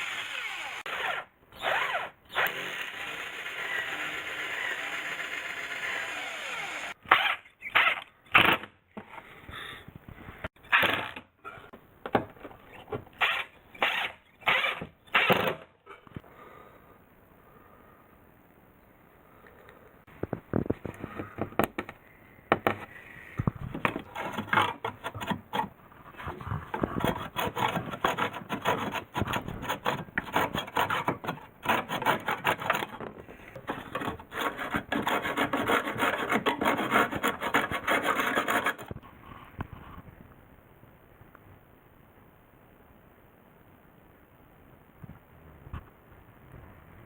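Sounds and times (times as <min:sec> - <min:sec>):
wood rasping strokes: 0:23.8 - 0:39.0.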